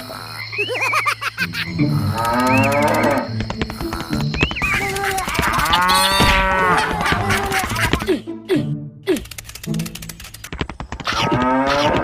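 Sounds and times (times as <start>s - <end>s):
clicking sounds: 1.2s - 8.1s, 9.1s - 12.0s
background music: 1.4s - 10.5s
cow mooing: 2.1s - 3.3s.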